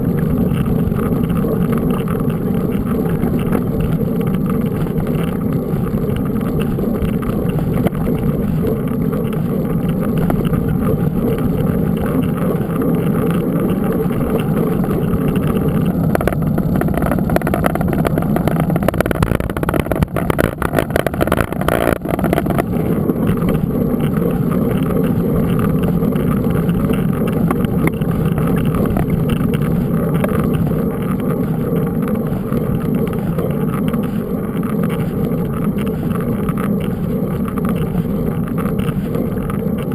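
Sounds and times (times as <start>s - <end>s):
bike knocks and rattles: 0.0s - 39.9s
bike tyres rolling rumble: 0.0s - 39.9s
wind noise: 0.0s - 39.9s.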